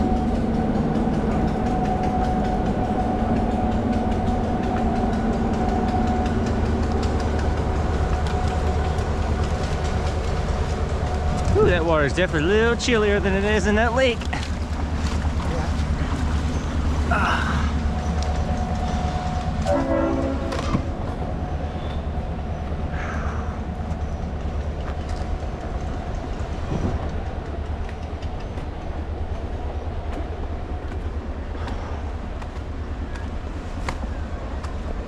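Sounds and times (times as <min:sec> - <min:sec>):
train rumbling past: 0:00.0 - 0:35.0
train horn: 0:18.9 - 0:22.0.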